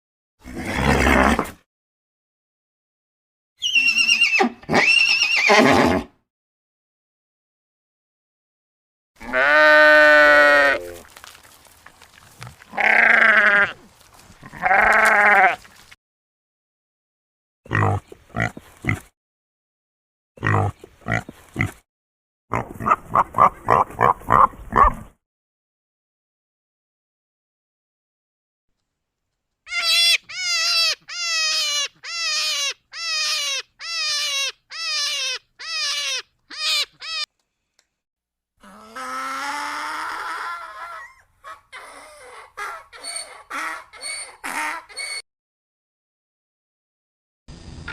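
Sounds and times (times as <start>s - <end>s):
sheep bleating: 9.2s - 11.0s, 12.7s - 13.8s, 14.4s - 15.6s
pig grunting: 17.7s - 19.1s, 20.4s - 21.8s.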